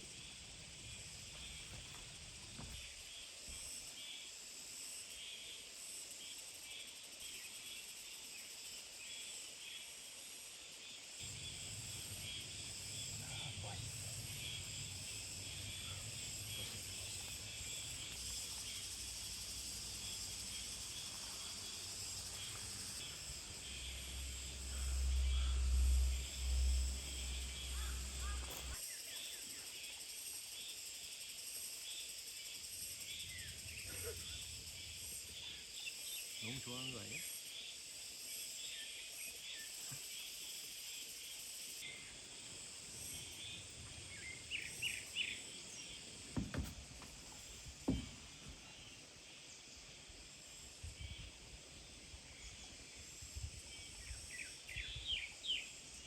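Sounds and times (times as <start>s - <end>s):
insects chirping: 0.0s - 56.0s
low rumble: 22.8s - 28.8s.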